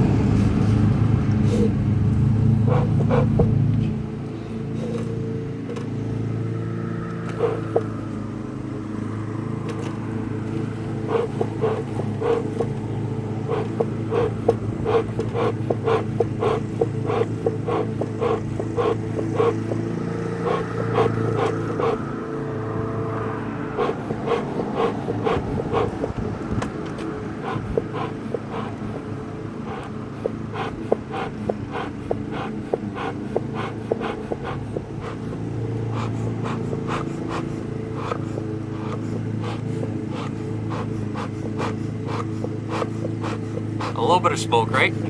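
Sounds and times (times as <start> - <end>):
bellows puffing: 2.5 - 3.5, 7.0 - 8.2, 9.9 - 22.2, 23.7 - 26.2, 27.2 - 45.0.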